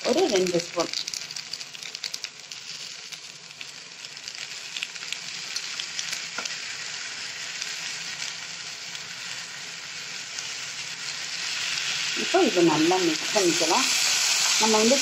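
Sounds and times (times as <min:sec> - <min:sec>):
light crackles: 0:00.0 - 0:06.6
stir-fry sizzling: 0:00.0 - 0:15.0.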